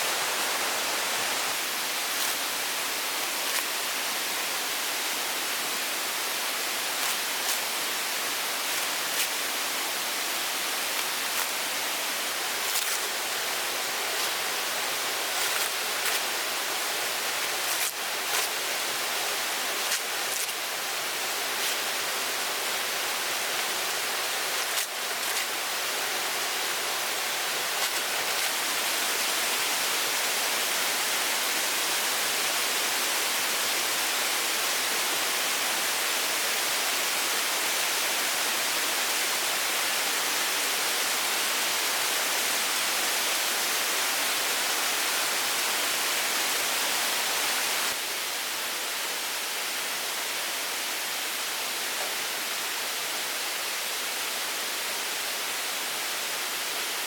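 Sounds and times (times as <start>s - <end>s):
rushing water hiss: 0.0s - 57.0s.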